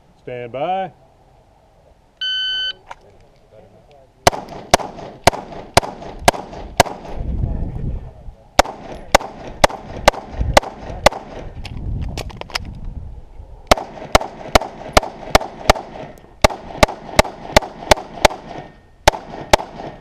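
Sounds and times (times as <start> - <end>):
rapid pistol fire: 4.3 - 7.2, 8.6 - 11.5, 13.7 - 20.0.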